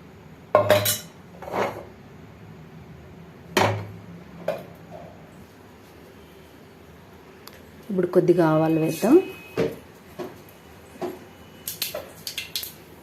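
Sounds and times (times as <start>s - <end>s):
metal cookware knocking and clinking: 0.6s - 1.1s.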